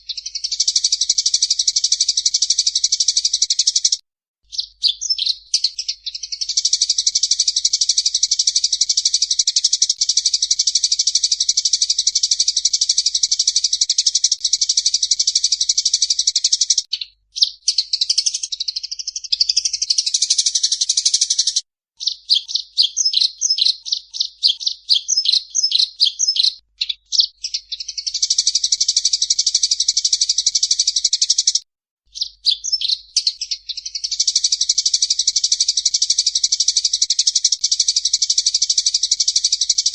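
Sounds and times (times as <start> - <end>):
songbird trilling: 0.0 - 31.6, 32.2 - 39.9.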